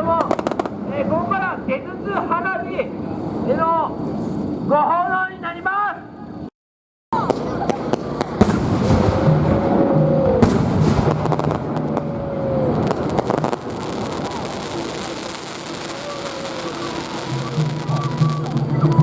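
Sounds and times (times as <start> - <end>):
fireworks hissing and cracking: 0.0 - 4.6, 7.2 - 19.0.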